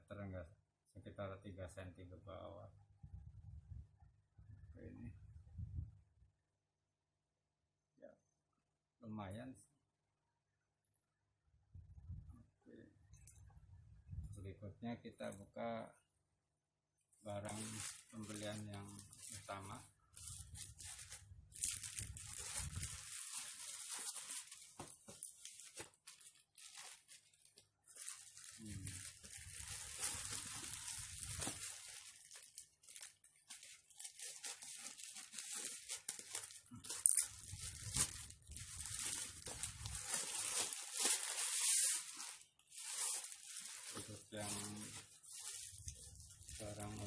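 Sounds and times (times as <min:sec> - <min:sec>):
plastic packaging crinkling: 0:17.3 - 0:47.0.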